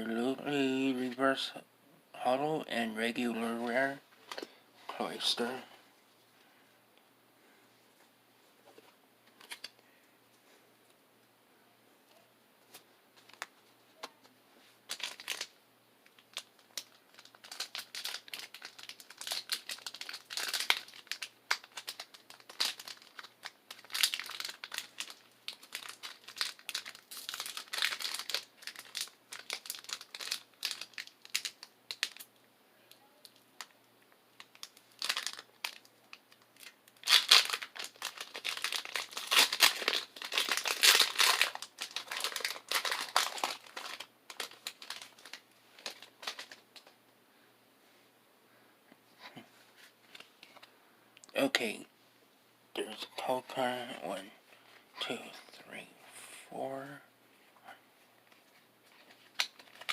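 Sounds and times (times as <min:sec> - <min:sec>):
foil wrapper crinkling and tearing: 0:14.9 - 0:32.3, 0:34.4 - 0:46.9, 0:58.9 - 0:59.9.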